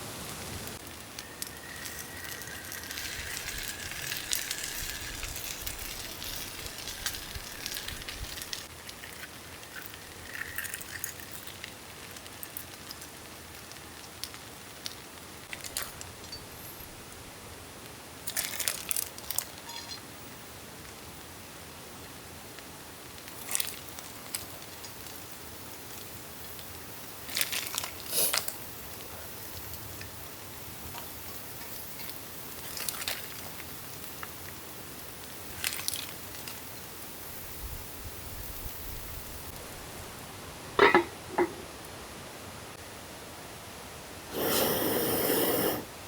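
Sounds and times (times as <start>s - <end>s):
rain hissing: 0.0s - 10.2s, 44.2s - 46.0s
small crackles and clicks: 0.7s - 16.4s, 17.8s - 20.0s, 22.6s - 30.2s, 30.8s - 36.9s.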